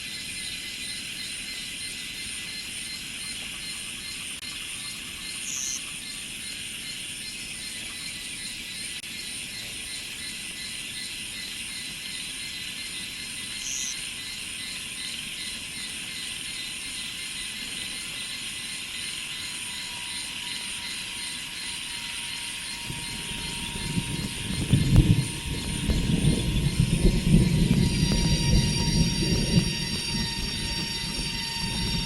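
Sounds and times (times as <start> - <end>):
insects buzzing: 0.0 - 32.0
low rumble: 22.7 - 32.0.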